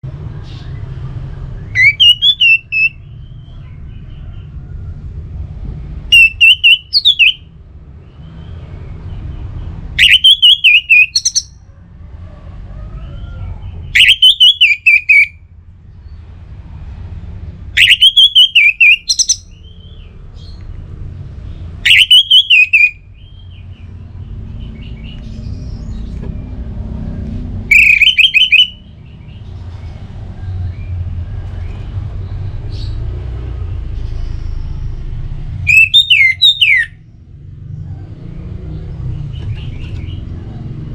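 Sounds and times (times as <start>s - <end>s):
thrush singing: 1.7s - 3.0s, 6.1s - 7.4s, 10.0s - 11.6s, 17.8s - 19.5s, 27.7s - 28.8s.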